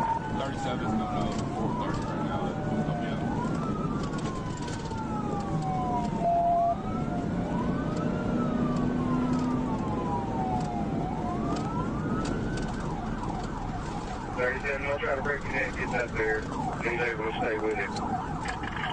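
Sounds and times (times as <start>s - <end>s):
car road and engine noise: 0.0s - 18.9s
police siren wailing: 0.0s - 18.9s.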